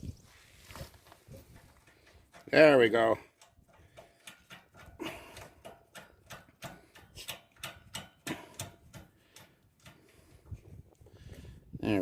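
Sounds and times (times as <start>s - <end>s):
sharp clicks and taps on metal frame: 1.3s - 10.7s.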